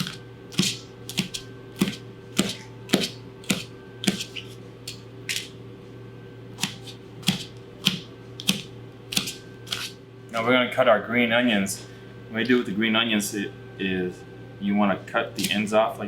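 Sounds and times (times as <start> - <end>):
knife slicing a pepper: 0.0 - 4.5, 6.6 - 10.0.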